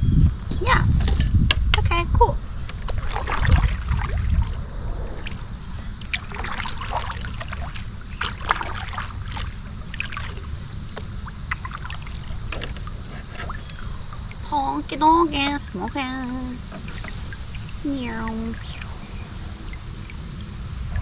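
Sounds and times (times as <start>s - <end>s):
steady low rumble: 0.0s - 21.0s
water splashing and dripping: 2.8s - 4.6s, 5.2s - 21.0s
small ticks and knocks: 10.9s - 14.4s.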